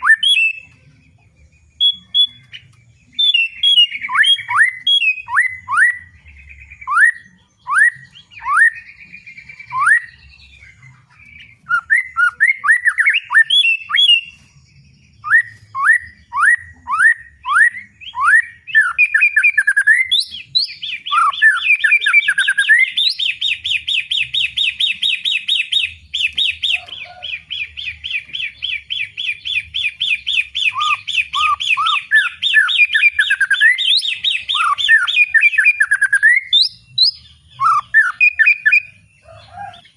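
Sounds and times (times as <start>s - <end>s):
bird chattering notes: 0.0s - 39.9s
bird singing whistled notes: 0.0s - 39.9s.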